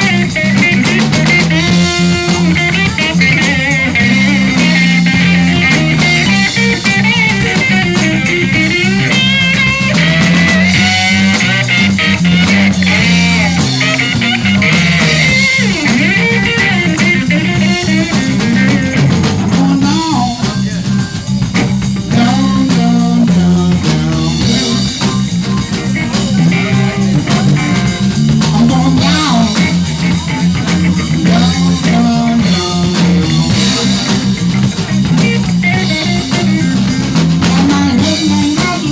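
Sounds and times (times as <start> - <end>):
lead guitar solo: 0.0 - 19.6, 29.0 - 38.9
blues band playing: 0.0 - 38.9.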